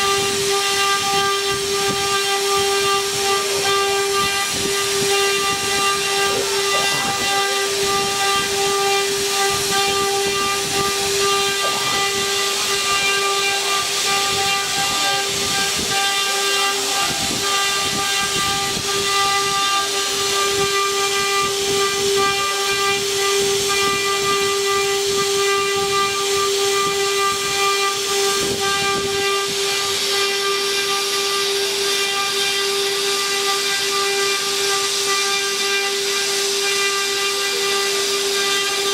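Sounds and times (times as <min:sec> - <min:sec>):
wood router spindles whining: 0:00.0 - 0:38.9
router bits crackling in wood: 0:01.8 - 0:19.9.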